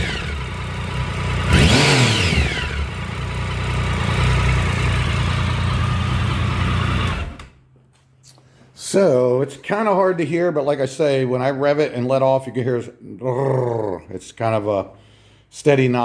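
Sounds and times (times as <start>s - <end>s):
motorcycle engine revving and idling: 0.0s - 7.6s.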